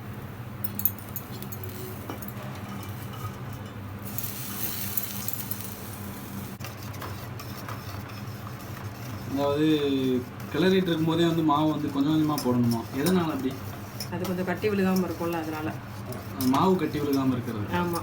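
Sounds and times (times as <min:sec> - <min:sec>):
steady low hum: 0:00.0 - 0:18.0
spoon stirring thick batter: 0:06.6 - 0:18.0.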